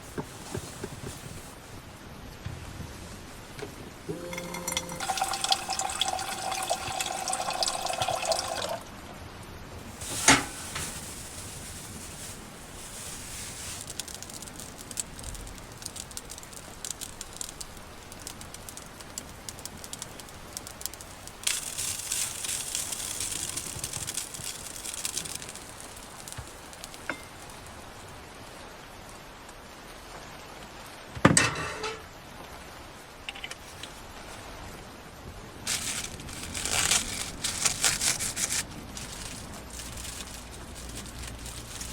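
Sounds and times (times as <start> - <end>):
small knocks and clatter: 0.0 - 1.6
hissing water: 3.2 - 8.8, 9.8 - 28.2
water running into container: 4.0 - 8.8.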